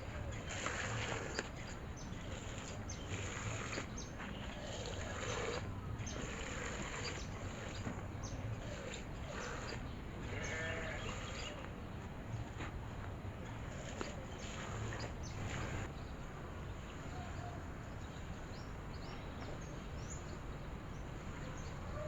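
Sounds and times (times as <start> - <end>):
birds chirping: 0.0 - 12.5, 13.8 - 16.1.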